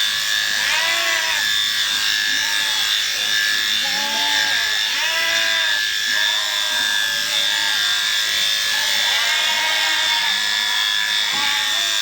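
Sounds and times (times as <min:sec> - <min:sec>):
electric shearing handpiece humming: 0:00.0 - 0:12.0.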